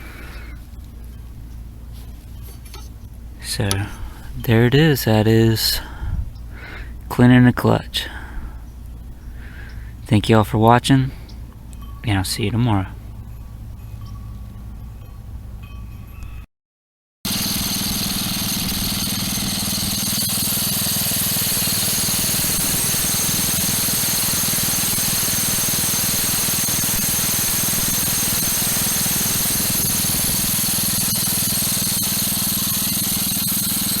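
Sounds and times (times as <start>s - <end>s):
small engine running: 0.0s - 4.4s, 17.3s - 34.0s.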